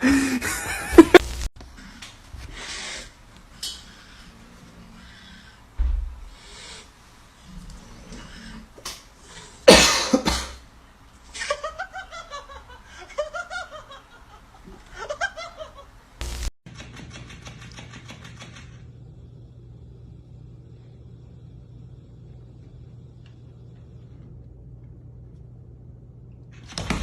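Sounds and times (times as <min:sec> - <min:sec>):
person laughing: 0:00.0 - 0:01.4, 0:11.4 - 0:16.0
steady low hum: 0:18.7 - 0:26.6.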